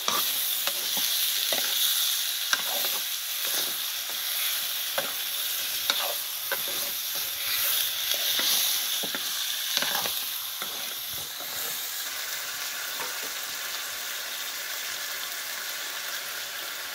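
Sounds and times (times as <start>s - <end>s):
spatula scraping a metal pan: 0.0s - 1.9s, 2.5s - 11.8s
chicken sizzling in a pan: 0.0s - 16.9s.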